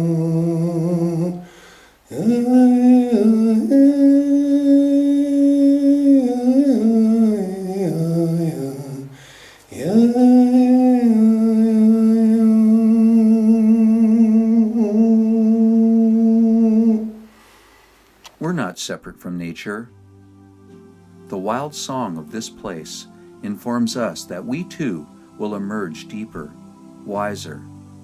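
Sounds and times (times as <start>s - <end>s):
person humming long notes: 0.0s - 17.4s.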